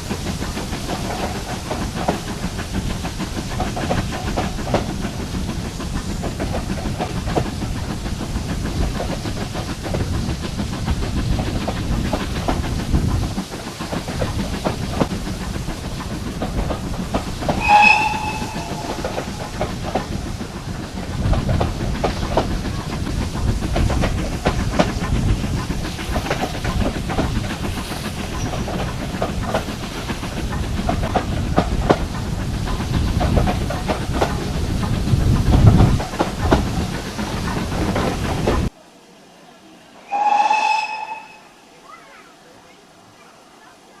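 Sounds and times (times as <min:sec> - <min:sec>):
train wheels clicking on rail joints: 0:00.0 - 0:38.7
short high-pitched tone: 0:17.6 - 0:19.3.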